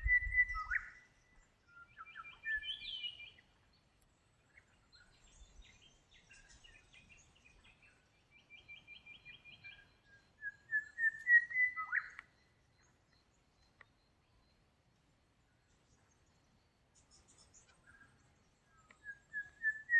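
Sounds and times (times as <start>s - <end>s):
birds chirping and whistling: 0.0s - 3.6s, 4.5s - 14.6s, 15.9s - 19.9s
faint click: 3.9s - 4.2s, 12.1s - 14.0s, 18.7s - 19.2s.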